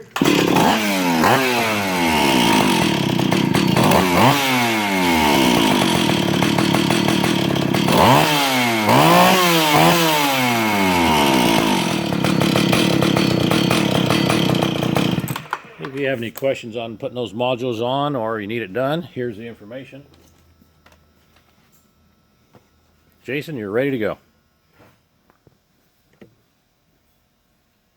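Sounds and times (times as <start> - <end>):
chainsaw idling and revving: 0.0 - 15.9.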